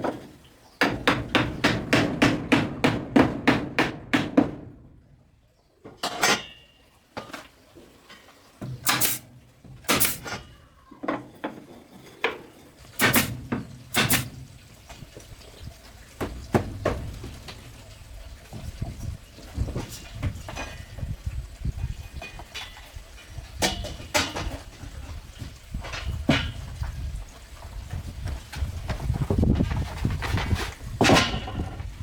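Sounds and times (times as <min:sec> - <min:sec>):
sharp knocks and clatters: 0:11.1 - 0:15.0, 0:16.2 - 0:17.8.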